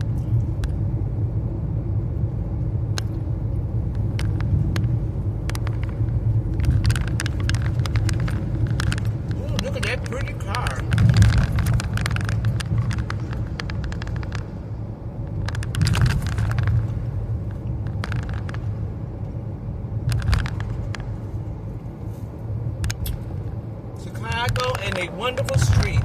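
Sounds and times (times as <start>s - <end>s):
car cabin road rumble: 0.0s - 26.0s
car rolling over bumps knocking: 4.0s - 19.1s.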